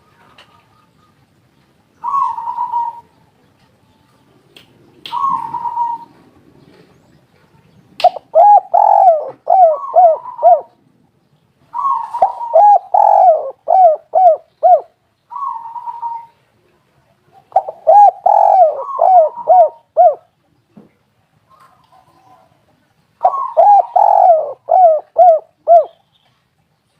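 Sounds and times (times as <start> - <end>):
dove cooing: 2.0 - 3.2, 5.1 - 7.0, 8.0 - 10.8, 11.7 - 16.4, 17.3 - 20.3, 23.2 - 26.0.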